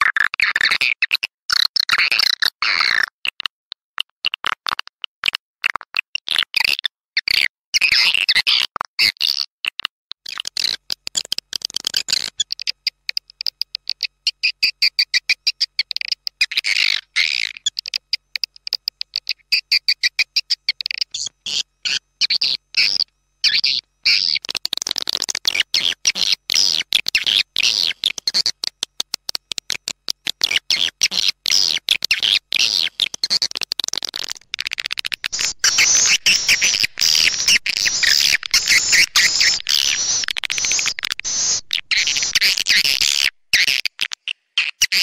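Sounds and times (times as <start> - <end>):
high twittering of swiftlets: 34.1 - 43.2.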